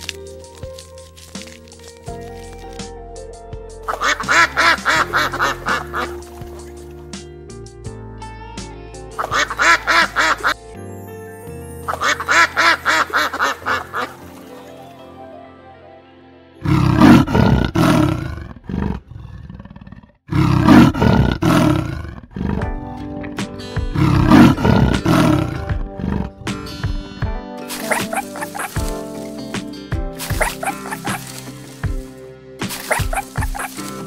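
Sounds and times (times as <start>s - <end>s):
background music: 0.0s - 19.2s, 20.3s - 34.0s
waterfowl quacking: 3.9s - 6.3s, 9.2s - 10.6s, 11.9s - 14.4s, 27.7s - 29.0s, 30.3s - 31.8s, 32.7s - 34.0s
jaguar roaring: 16.6s - 22.7s, 23.9s - 26.5s.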